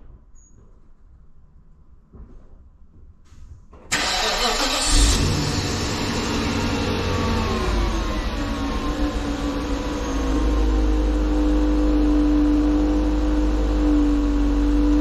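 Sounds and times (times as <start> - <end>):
starter motor cranking: 3.9 - 5.9
car engine starting and idling: 3.9 - 15.0.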